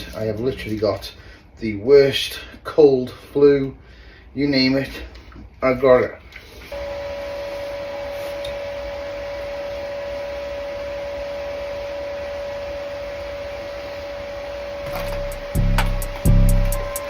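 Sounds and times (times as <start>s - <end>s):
electrical whine: 6.7s - 17.0s
clicks: 14.9s - 17.0s
low hum: 14.9s - 17.0s.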